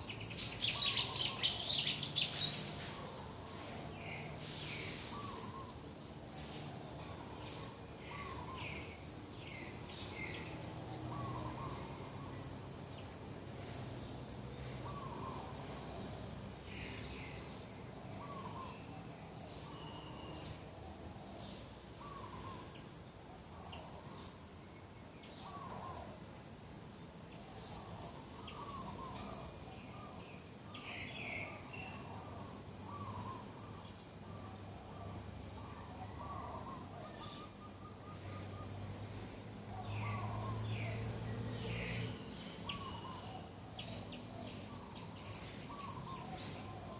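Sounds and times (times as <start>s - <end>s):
small birds chirping: 0.0s - 26.2s, 26.9s - 46.9s
dove cooing: 31.4s - 38.9s, 42.6s - 46.9s.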